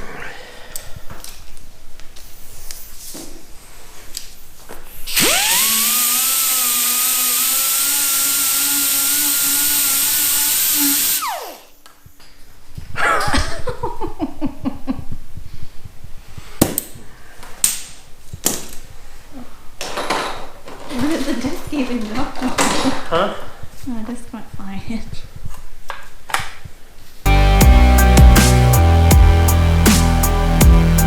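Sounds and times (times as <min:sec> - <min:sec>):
disc grinder on sheet metal: 0:05.2 - 0:11.7.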